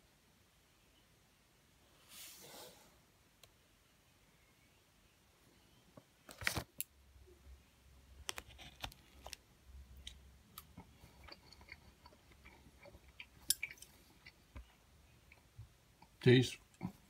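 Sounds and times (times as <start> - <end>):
person chewing wet mouth clicks: 10.0 - 14.4.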